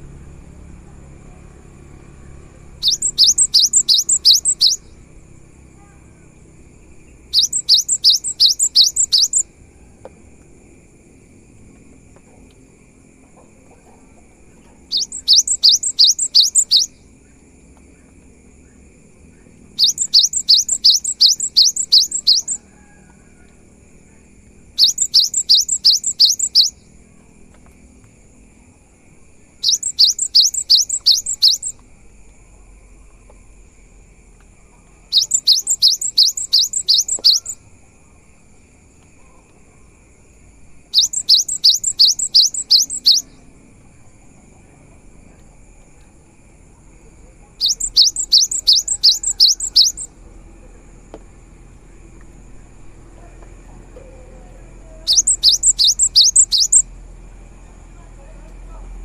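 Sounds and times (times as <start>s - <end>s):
faint steady high tone: 0.4s - 5.0s, 7.1s - 10.1s, 14.6s - 17.0s, 19.8s - 23.5s, 24.7s - 27.3s, 29.6s - 31.8s, 34.7s - 37.7s, 40.9s - 43.4s, 47.3s - 50.1s, 53.9s - 56.9s
bird singing: 1.2s - 10.0s, 13.2s - 27.3s, 29.5s - 33.5s, 34.6s - 37.6s, 40.8s - 44.1s, 47.2s - 50.7s, 51.8s - 56.9s.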